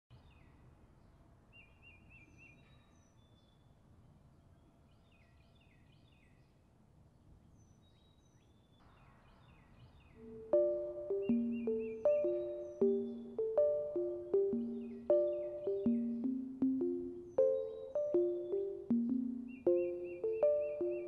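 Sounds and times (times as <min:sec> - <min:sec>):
birds chirping and trilling: 0:07.6 - 0:21.0
music with struck notes: 0:10.2 - 0:21.0.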